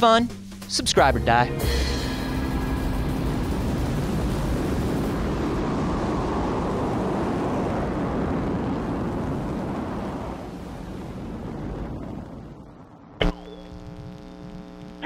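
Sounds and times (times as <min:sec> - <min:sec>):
steady rumbling roar: 0:02.2 - 0:15.0.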